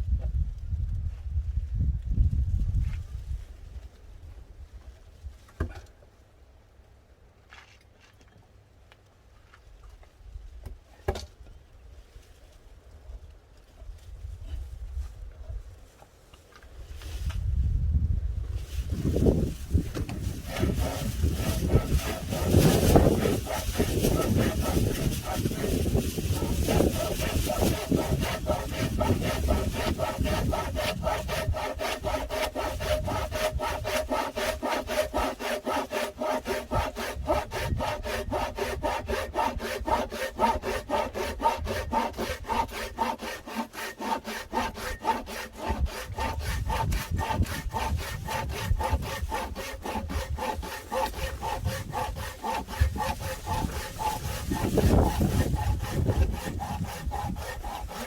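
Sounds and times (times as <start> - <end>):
saw cutting firewood: 18.6 - 58.0.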